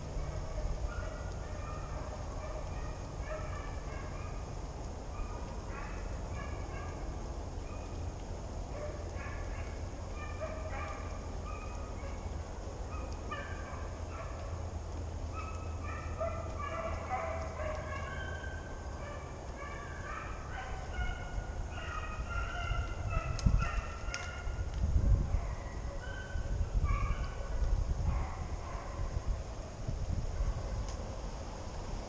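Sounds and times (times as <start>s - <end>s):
hounds baying: 0.0s - 4.5s, 5.1s - 7.1s, 8.7s - 14.7s, 15.3s - 24.6s, 25.2s - 29.1s.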